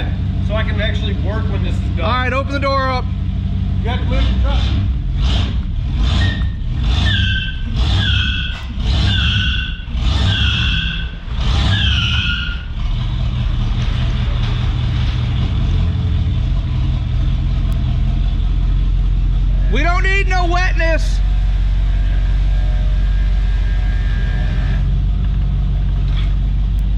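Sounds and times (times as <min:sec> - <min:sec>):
car engine revving and idling: 0:00.0 - 0:26.9
tires squealing: 0:03.8 - 0:16.9, 0:19.4 - 0:26.5.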